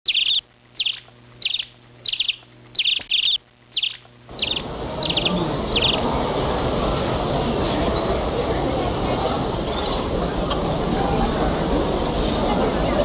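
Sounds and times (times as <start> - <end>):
bird chirping: 0.0 - 6.1
steady noisy background din: 0.9 - 13.0.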